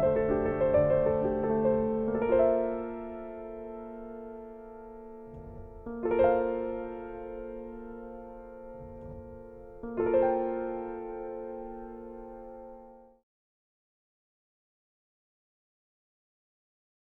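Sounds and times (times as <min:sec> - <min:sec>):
piano chords ringing: 0:00.0 - 0:13.2.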